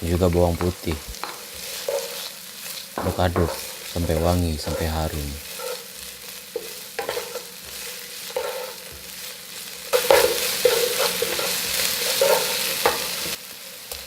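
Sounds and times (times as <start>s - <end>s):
onion sizzling in oil: 0.0s - 14.0s
utensil knocking against pan: 0.6s - 2.0s, 3.0s - 5.0s.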